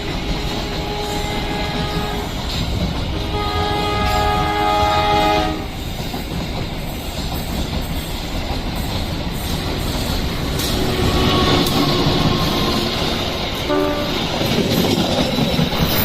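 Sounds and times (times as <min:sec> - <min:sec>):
train rumble and wheel clatter: 0:00.0 - 0:16.0
locomotive horn: 0:00.5 - 0:02.4, 0:03.2 - 0:05.7, 0:10.8 - 0:13.0, 0:13.6 - 0:14.4.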